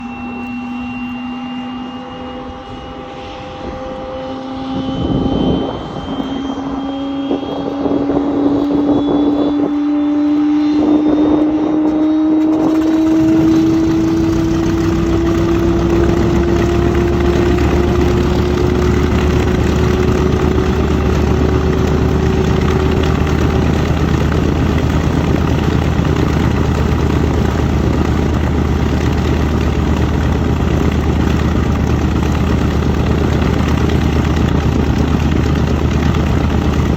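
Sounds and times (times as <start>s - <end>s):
radial engine coughing and idling: 12.4s - 36.9s
starter motor whine: 12.4s - 36.9s.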